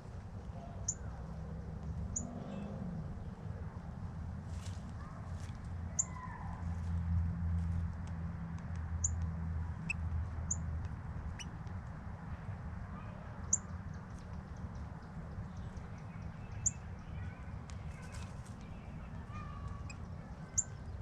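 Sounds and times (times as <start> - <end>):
bird chirping: 5.9 - 6.4, 9.8 - 10.6, 13.4 - 21.0.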